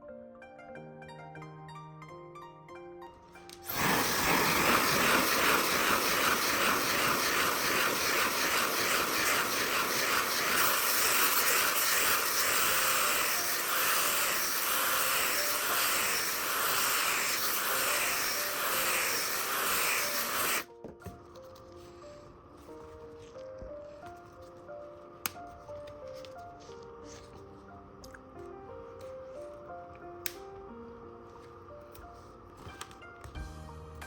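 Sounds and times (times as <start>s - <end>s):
loud pulsing air hiss: 3.7s - 20.7s.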